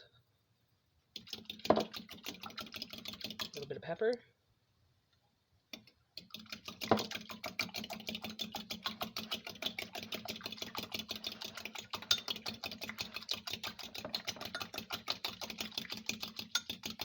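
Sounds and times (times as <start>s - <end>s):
fork clicking against bowl: 5.8s - 17.0s.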